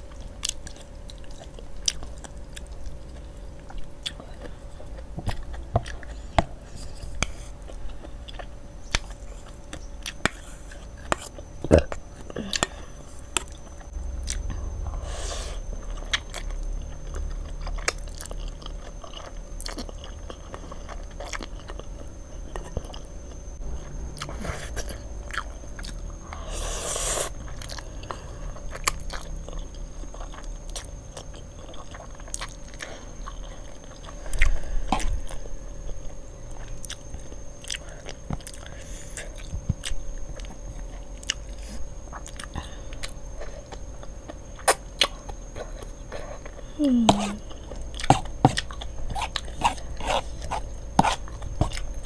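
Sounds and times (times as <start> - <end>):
chewing and biting noodles: 15.8 - 23.1, 26.8 - 46.6, 47.2 - 52.0.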